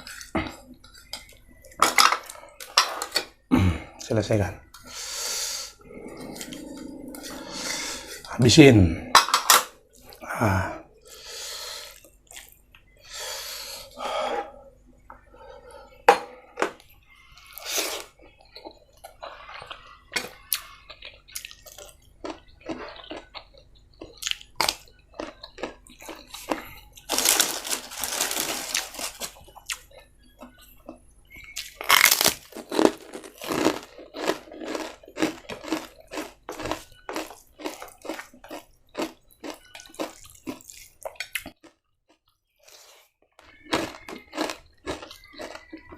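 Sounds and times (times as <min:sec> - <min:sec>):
noisy stretches: 0:05.6 - 0:09.2
chewing and crunching: 0:11.9 - 0:12.9, 0:16.8 - 0:45.9.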